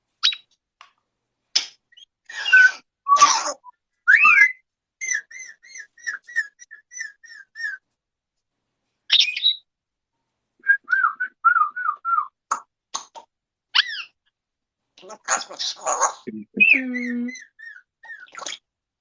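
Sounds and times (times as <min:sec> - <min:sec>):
parrot whistling: 0:02.4 - 0:07.8.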